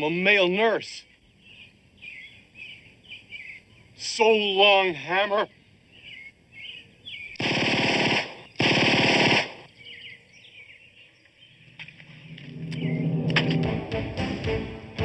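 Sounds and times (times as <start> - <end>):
birds chirping faintly: 0.0 - 7.4, 9.4 - 13.8
automatic gunfire: 7.4 - 9.7.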